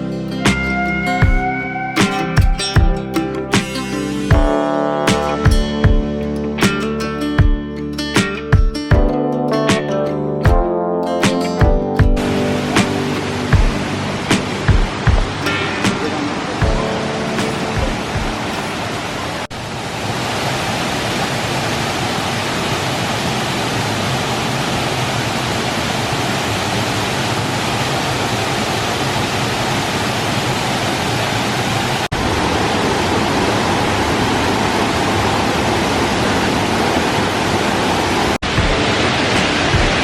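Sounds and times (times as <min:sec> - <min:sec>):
waterfall rushing water: 0:12.2 - 0:40.0.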